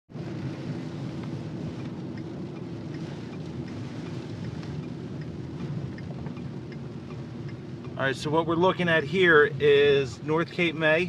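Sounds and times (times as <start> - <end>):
rain tapping on car: 0.1 - 11.0
road and engine rumble: 0.1 - 11.0.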